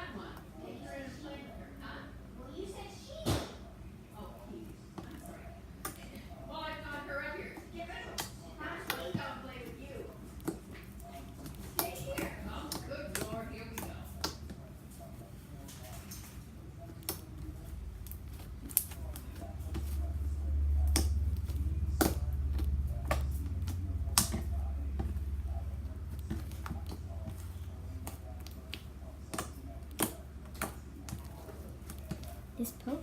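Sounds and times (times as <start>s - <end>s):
slime clicking and popping: 18.0s - 20.0s, 20.6s - 32.9s.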